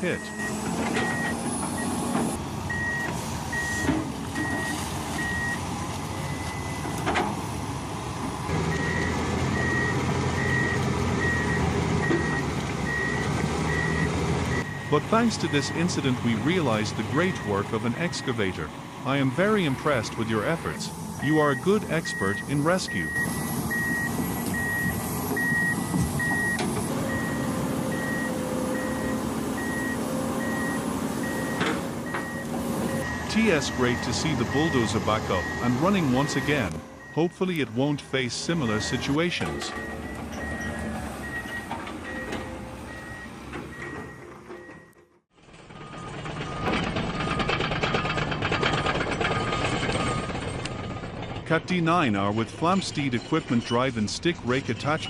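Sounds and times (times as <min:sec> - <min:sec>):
diesel engine running: 0:00.0 - 0:55.0
reversing alarm beeping: 0:00.1 - 0:02.0, 0:02.7 - 0:05.6, 0:06.3 - 0:06.9, 0:08.7 - 0:37.6, 0:38.6 - 0:45.1.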